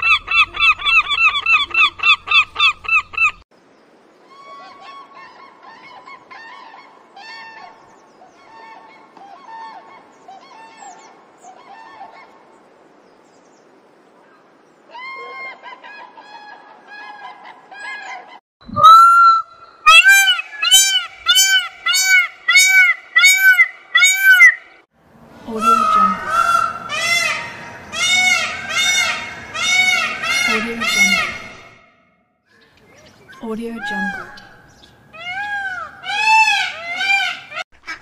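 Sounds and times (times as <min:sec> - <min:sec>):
birds honking: 0:15.1 - 0:24.8, 0:25.5 - 0:32.1, 0:33.3 - 0:38.0.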